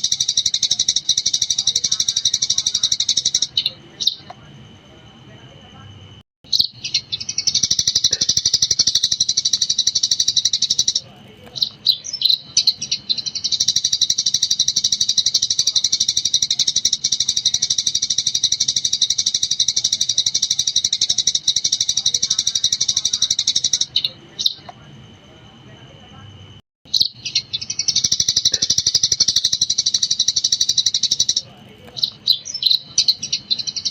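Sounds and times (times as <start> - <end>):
sparrow chirping: 0.0 - 5.7, 6.5 - 24.9, 26.9 - 33.9.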